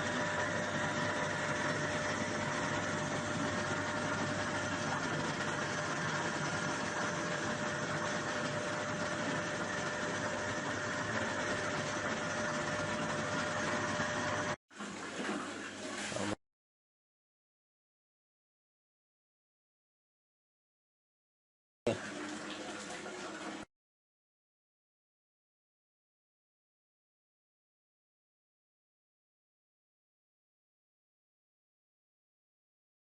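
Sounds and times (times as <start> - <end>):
washing machine humming: 0.0 - 16.4, 21.9 - 23.7.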